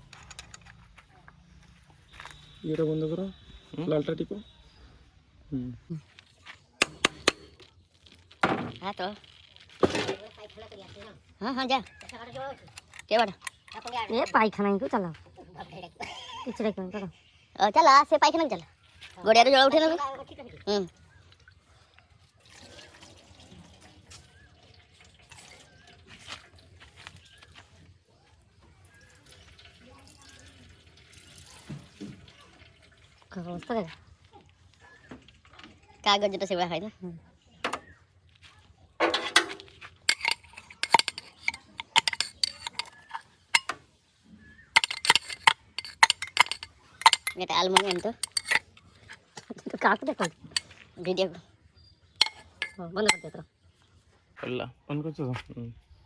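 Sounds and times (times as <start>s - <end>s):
metal tools clinking and tapping: 0.0s - 2.6s, 6.8s - 7.7s, 11.8s - 14.6s, 39.0s - 43.8s, 44.8s - 50.8s, 52.2s - 53.4s
liquid trickling and dripping: 20.2s - 27.2s, 29.0s - 34.0s.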